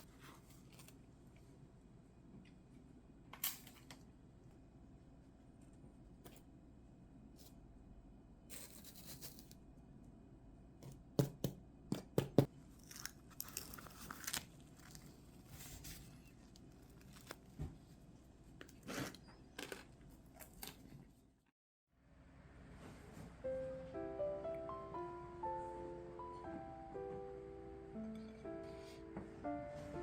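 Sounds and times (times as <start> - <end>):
rustling and tearing: 12.8 - 17.6.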